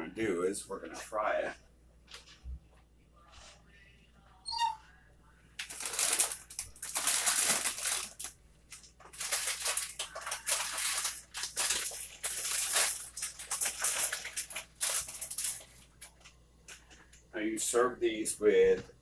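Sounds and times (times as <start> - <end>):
chips crunching: 5.6 - 16.9
plastic bag crinkling: 5.6 - 16.9.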